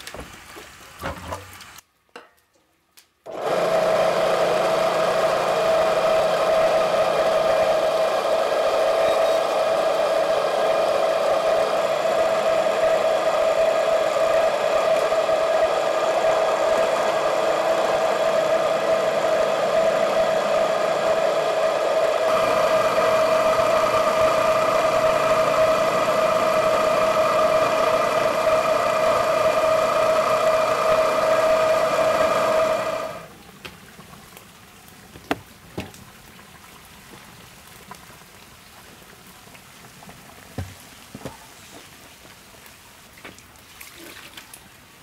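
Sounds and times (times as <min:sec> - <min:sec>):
small electric motor running: 0:03.3 - 0:33.3.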